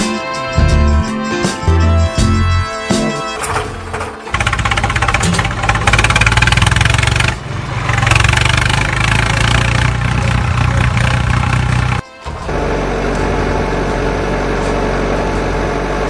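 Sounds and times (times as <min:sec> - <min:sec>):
small motor rattling buzz: 0:03.6 - 0:12.8.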